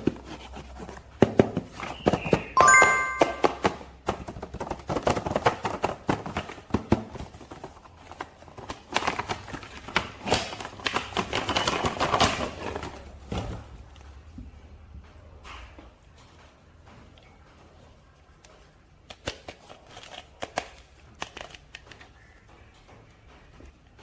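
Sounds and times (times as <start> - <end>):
packaging clicks and crinkles: 4.2 - 13.0, 19.0 - 22.4.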